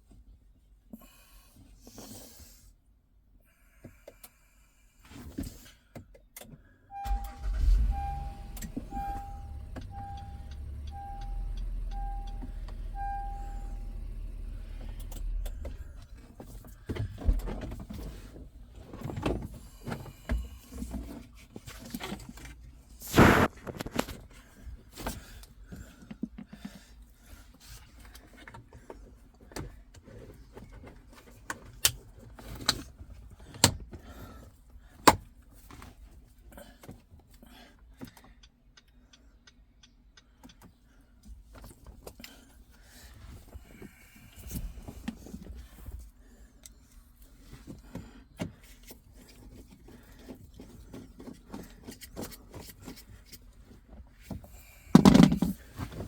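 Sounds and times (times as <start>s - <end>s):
car warning chime beeping: 6.9s - 15.9s
car engine rumbling: 6.9s - 25.6s.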